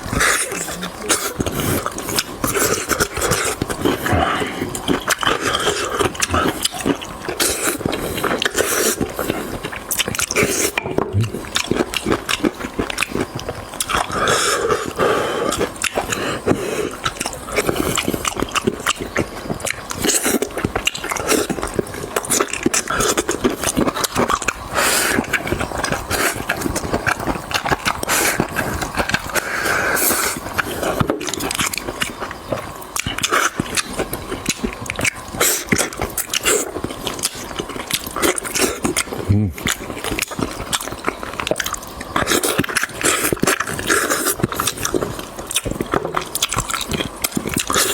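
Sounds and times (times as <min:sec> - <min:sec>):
chewing and mouth smacking: 0:00.0 - 0:47.9
small crackles and clicks: 0:14.8 - 0:47.9.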